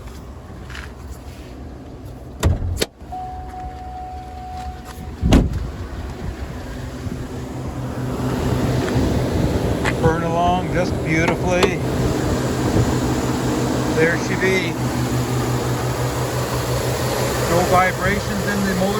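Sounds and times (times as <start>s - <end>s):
truck engine idling: 0.0s - 18.9s
heavy thump: 2.4s - 2.9s, 5.2s - 6.3s, 12.7s - 13.0s
electronic warning tone: 3.1s - 5.2s.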